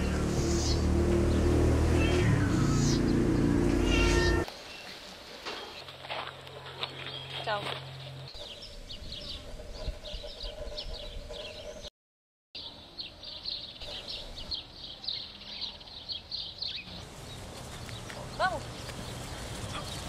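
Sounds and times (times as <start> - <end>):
small birds chirping: 0.0 - 5.0, 12.6 - 20.0.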